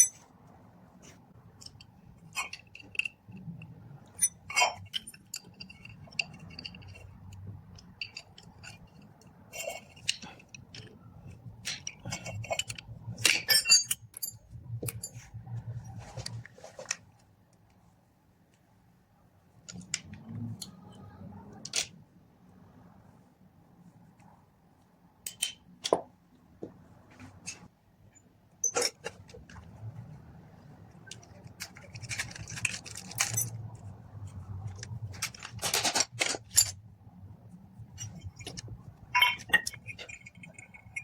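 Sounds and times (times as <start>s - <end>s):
metal tools clicking and clinking: 0.0s - 0.2s, 1.6s - 15.3s, 25.2s - 26.0s, 28.6s - 29.6s, 31.0s - 36.8s, 37.9s - 41.0s.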